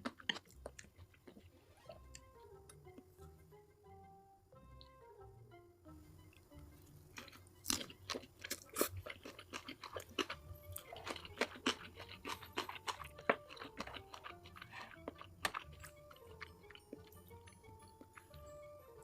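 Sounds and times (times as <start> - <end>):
person chewing crunchy food: 0.0 - 2.3, 6.4 - 18.6.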